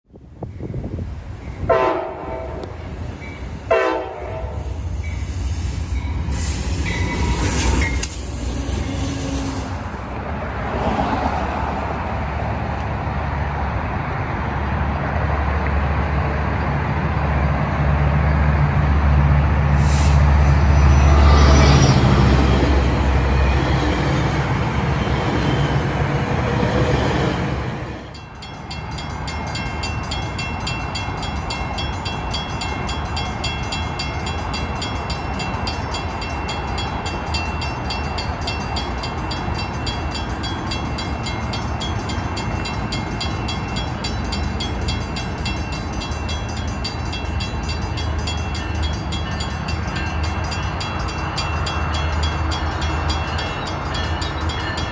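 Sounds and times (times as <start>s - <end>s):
low train rumble: 0.1s - 54.9s
train horn blasts: 1.6s - 2.8s, 3.7s - 4.8s, 8.5s - 9.9s.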